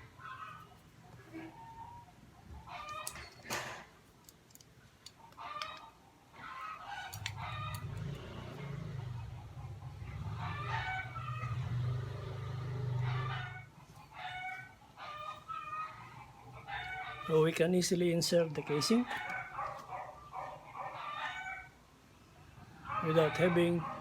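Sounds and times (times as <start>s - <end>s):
chickens clucking: 0.0s - 3.3s, 5.1s - 24.0s
rooster crowing: 5.5s - 17.5s, 18.7s - 21.8s.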